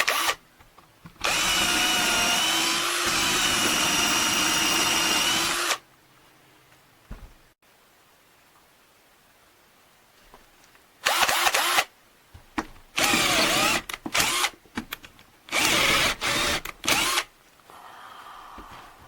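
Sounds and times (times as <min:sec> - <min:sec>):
cordless drill motor: 0:00.0 - 0:00.4, 0:01.2 - 0:05.8, 0:13.0 - 0:14.5, 0:15.5 - 0:17.3.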